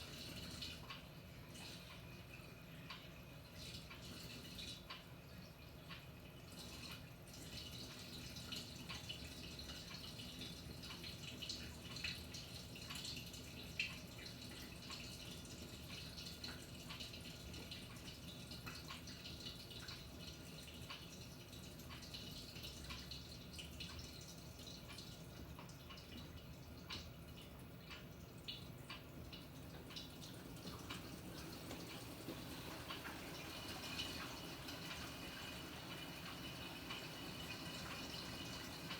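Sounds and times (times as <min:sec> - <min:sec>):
low steady hum: 0:00.0 - 0:38.9
water splashing in washing machine: 0:00.0 - 0:38.9.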